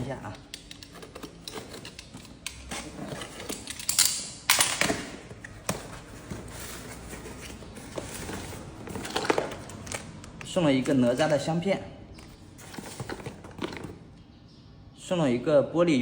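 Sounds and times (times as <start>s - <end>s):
small handling clicks: 0.4s - 5.6s
plastic packaging crinkling: 7.0s - 11.6s.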